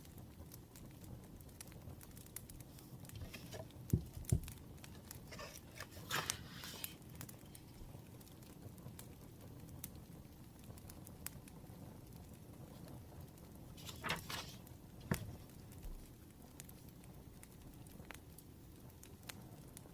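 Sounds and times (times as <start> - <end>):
wood fire crackling: 0.0 - 19.9
paper rustling: 2.6 - 7.7, 13.7 - 16.1
soft knocks on desk: 3.2 - 4.5.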